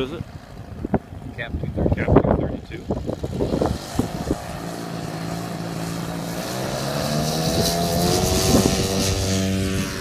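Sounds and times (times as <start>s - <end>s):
model plane engine droning: 2.8s - 10.0s.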